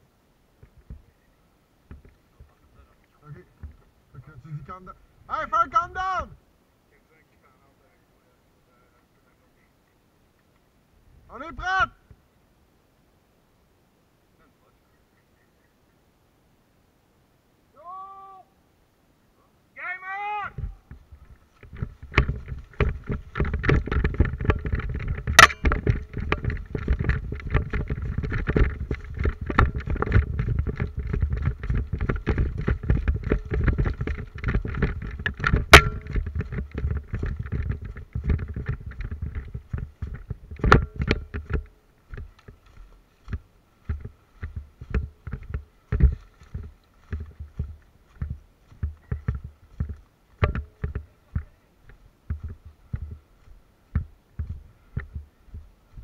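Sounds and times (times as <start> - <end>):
sharp cracks: 21.6 - 42.6.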